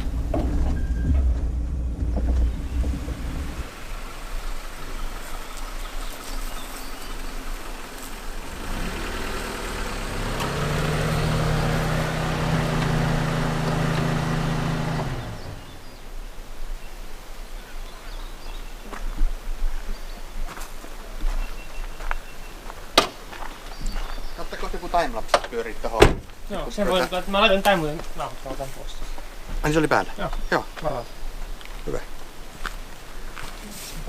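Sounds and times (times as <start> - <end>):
engine revving: 0.0 - 15.9.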